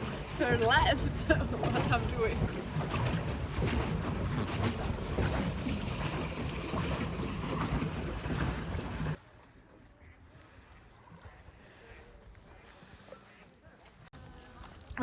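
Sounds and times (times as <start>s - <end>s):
wind buffeting microphone: 0.0s - 9.2s
water noise: 0.0s - 15.0s.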